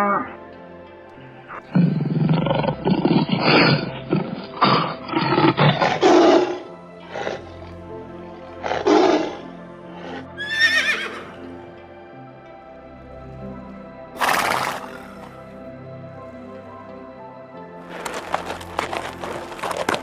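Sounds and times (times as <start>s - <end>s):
background music: 0.0s - 20.0s
tiger roaring: 1.5s - 11.4s, 14.2s - 15.4s
horse whinnying: 8.6s - 9.4s, 10.0s - 11.5s, 14.2s - 15.4s.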